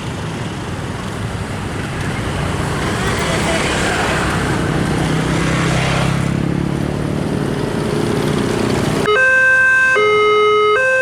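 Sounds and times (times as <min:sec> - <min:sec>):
road traffic: 0:00.0 - 0:11.0
vehicle engine running: 0:06.4 - 0:09.1
level crossing two-tone alarm: 0:09.1 - 0:11.0.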